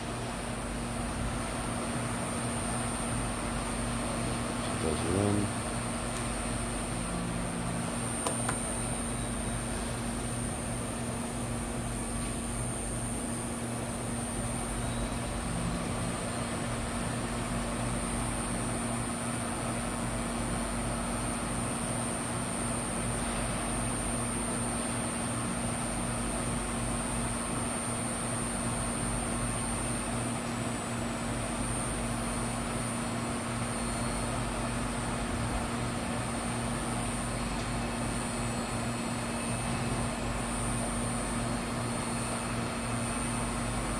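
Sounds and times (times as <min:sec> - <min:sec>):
machine click: 0:08.2 - 0:08.7.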